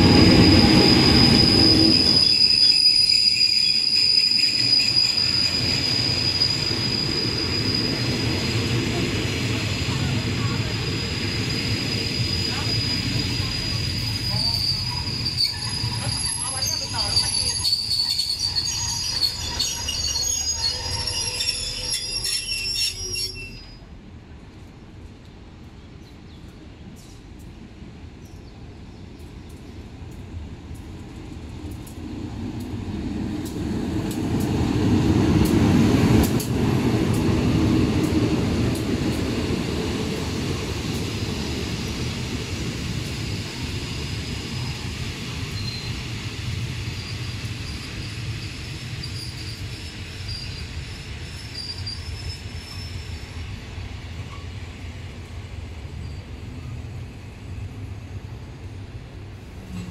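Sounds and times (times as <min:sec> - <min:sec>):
faint high wheel squeal: 0:00.0 - 0:09.0, 0:09.9 - 0:23.9, 0:43.6 - 0:46.1, 0:46.9 - 0:53.5
train passing rumble: 0:00.0 - 0:59.9.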